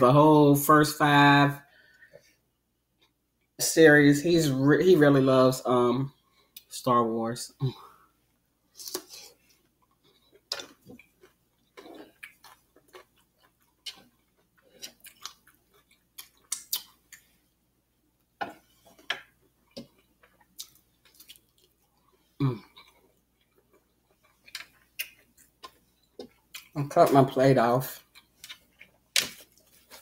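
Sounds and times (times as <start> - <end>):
crunchy chewing bursts: 8.7 - 17.3, 19.7 - 26.8
person chewing and lip-smacking: 8.8 - 17.3, 18.4 - 27.2, 28.0 - 30.0.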